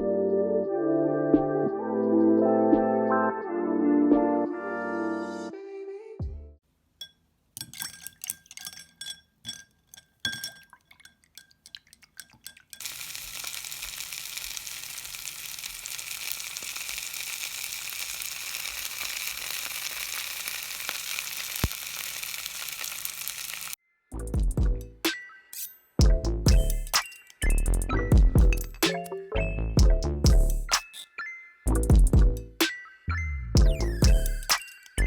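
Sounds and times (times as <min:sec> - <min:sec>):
paintbrush clinking in glass: 0:07.0 - 0:13.1
steady hiss: 0:12.8 - 0:23.8.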